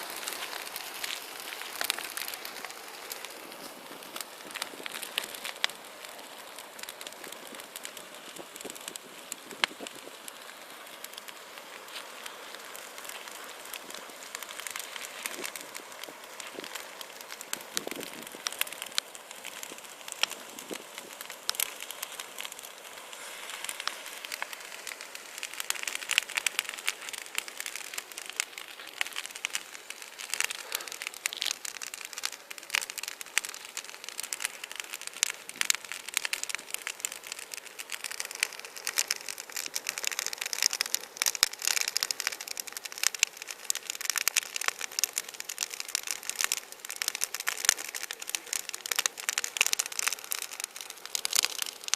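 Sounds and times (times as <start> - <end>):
bonfire crackling and popping: 0.0 - 51.9
hiss of flames: 0.0 - 51.9.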